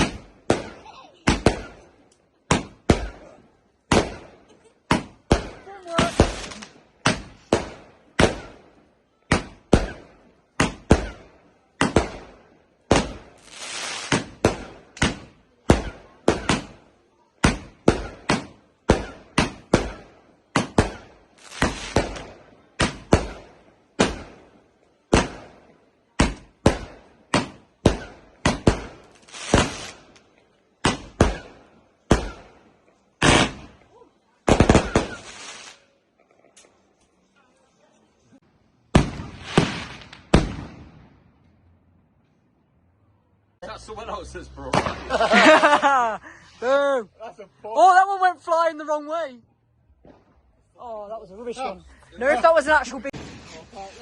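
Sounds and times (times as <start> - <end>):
fireworks bangs: 0.0 - 36.0, 38.8 - 41.6, 44.6 - 46.0, 52.4 - 54.0
fireworks hiss and crackle: 4.9 - 8.8, 9.4 - 16.8, 17.5 - 32.6, 34.5 - 36.1, 38.9 - 40.8, 51.5 - 54.0.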